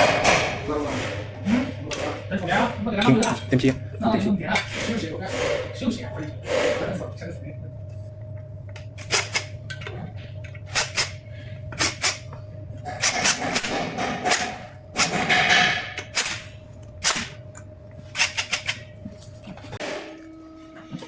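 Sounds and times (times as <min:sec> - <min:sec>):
metal scraping: 0:00.0 - 0:03.6, 0:04.4 - 0:07.1
metal tools clicking and knocking: 0:03.0 - 0:03.8, 0:18.2 - 0:18.9.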